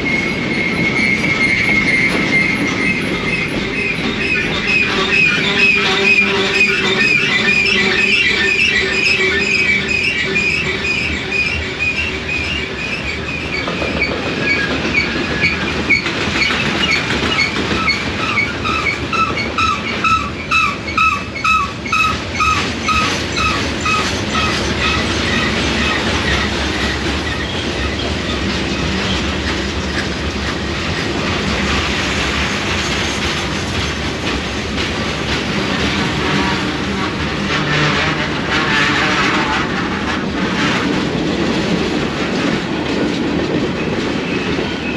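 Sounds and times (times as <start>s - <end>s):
high-pitched wheel squeal: 0.0s - 26.5s
train rumbling past: 0.0s - 44.9s
wheels clickety-clack: 0.0s - 44.9s.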